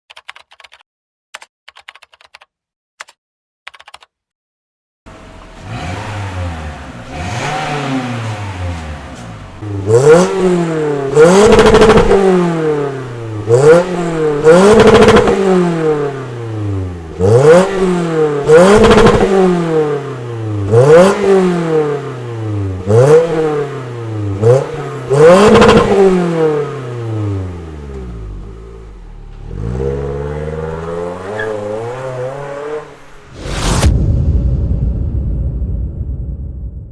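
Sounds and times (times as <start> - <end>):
car engine idling: 5.1 - 11.4
car engine revving: 5.1 - 33.8.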